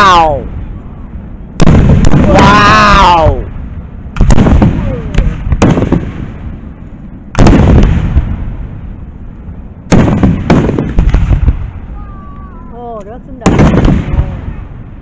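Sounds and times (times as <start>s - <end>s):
small firework reports: 0.0s - 9.0s, 9.8s - 15.0s
firework shells booming: 1.6s - 6.7s, 7.3s - 8.8s, 9.9s - 11.8s, 13.4s - 14.8s.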